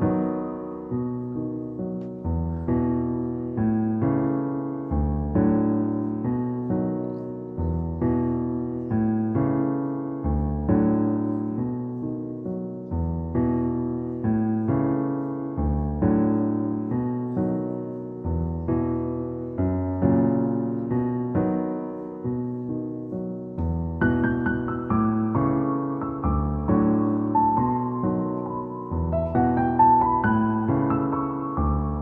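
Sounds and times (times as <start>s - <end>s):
gentle piano chords: 0.0s - 32.0s.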